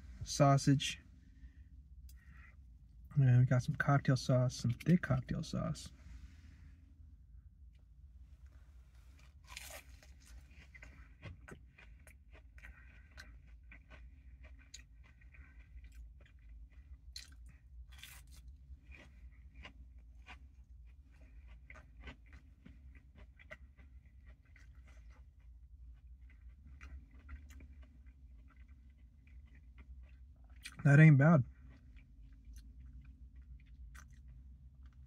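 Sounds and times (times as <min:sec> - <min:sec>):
crunchy bite and chewing: 0:09.1 - 0:30.8, 0:31.6 - 0:35.0.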